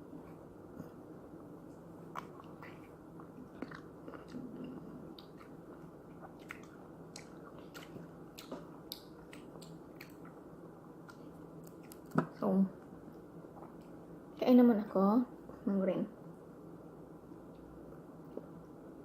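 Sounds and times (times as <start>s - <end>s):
person chewing grapes: 2.0s - 12.2s.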